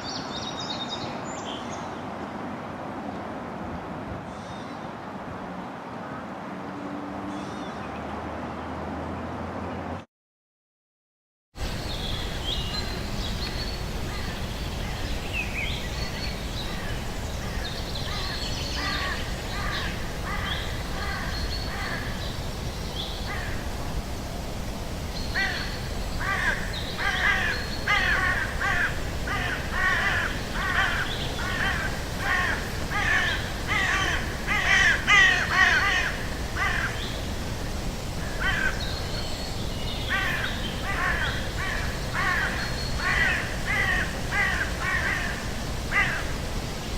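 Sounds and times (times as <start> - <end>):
harsh bird calls: 25.2 - 37.4, 38.2 - 46.5.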